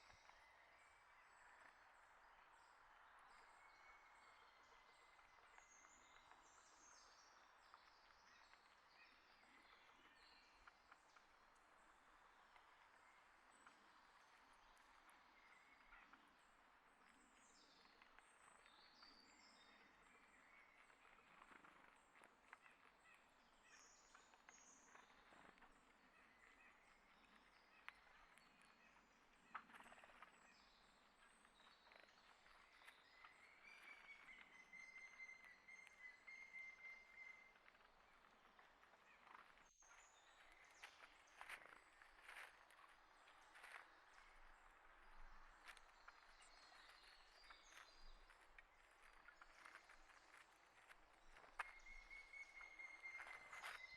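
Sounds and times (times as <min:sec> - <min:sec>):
small birds chirping: 0:00.0 - 0:53.9
light ticks and scuffs: 0:37.6 - 0:53.9.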